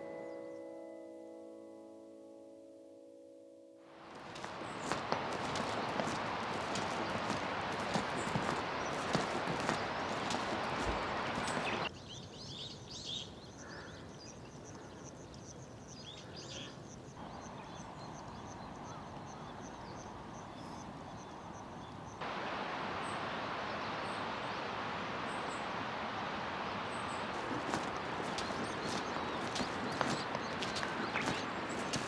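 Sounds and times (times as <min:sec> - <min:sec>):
outdoor hiss: 0:04.0 - 0:11.9, 0:22.2 - 0:32.0
small birds chirping: 0:04.1 - 0:32.0.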